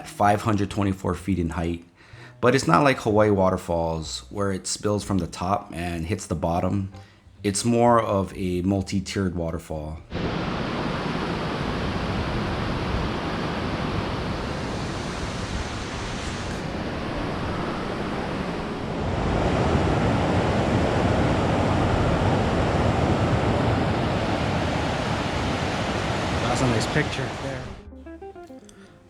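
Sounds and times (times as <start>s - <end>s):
waterfall rushing: 10.1s - 27.8s.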